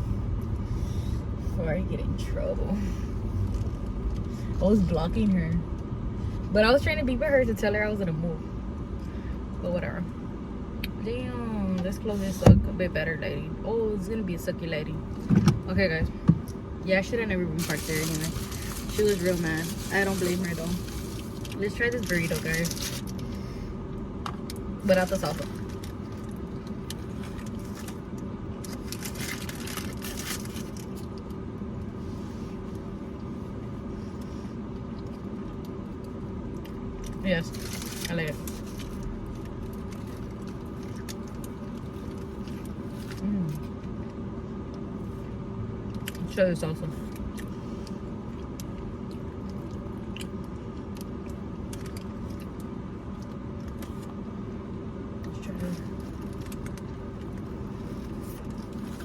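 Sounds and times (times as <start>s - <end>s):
car engine idling: 0.0s - 59.0s
rustling and crackling: 17.6s - 23.4s
person chewing: 47.1s - 54.2s.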